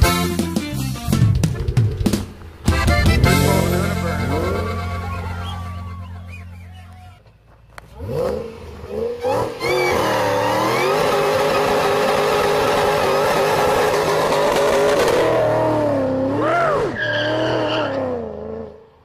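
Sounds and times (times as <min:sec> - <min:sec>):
car engine revving: 0:07.7 - 0:19.0
tyres spinning in burnout: 0:07.9 - 0:18.4.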